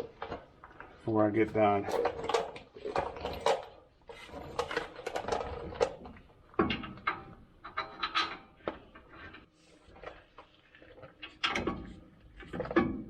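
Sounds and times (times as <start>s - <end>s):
metal tools clinking and clattering: 1.5s - 5.6s.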